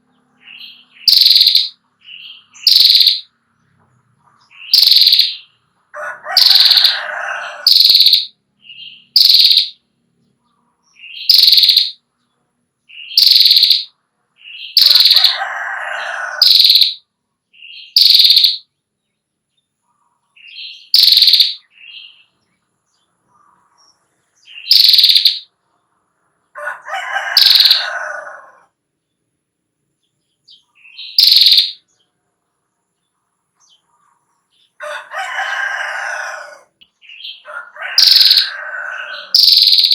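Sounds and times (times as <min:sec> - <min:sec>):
bird high sharp chirps: 0:00.4 - 0:03.3, 0:04.4 - 0:05.6, 0:06.3 - 0:09.8, 0:10.9 - 0:12.0, 0:12.9 - 0:18.7, 0:20.4 - 0:22.4, 0:24.4 - 0:25.6, 0:27.2 - 0:28.2, 0:30.5 - 0:32.0, 0:35.7 - 0:39.9
bird buzzy rattle call: 0:01.0 - 0:01.8, 0:02.6 - 0:03.3, 0:04.7 - 0:05.4, 0:06.3 - 0:08.3, 0:09.1 - 0:09.8, 0:11.2 - 0:12.0, 0:13.2 - 0:13.9, 0:14.7 - 0:17.0, 0:17.9 - 0:18.6, 0:20.9 - 0:21.6, 0:24.6 - 0:25.5, 0:27.2 - 0:28.2, 0:31.1 - 0:31.8, 0:38.0 - 0:39.9.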